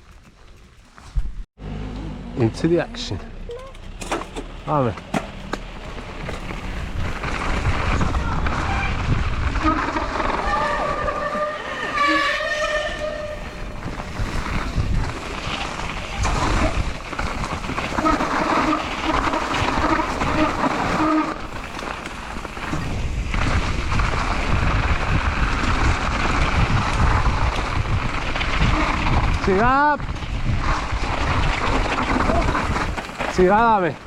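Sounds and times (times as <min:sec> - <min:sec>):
knocks and rattles: 0:03.6 - 0:07.3
wind buffeting microphone: 0:05.3 - 0:34.0.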